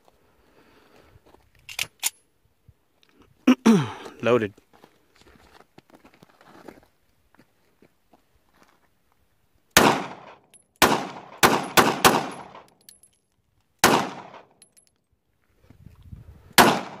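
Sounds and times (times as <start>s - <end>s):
gunshots with echo: 9.8s - 12.7s, 13.8s - 14.5s, 16.6s - 17.0s.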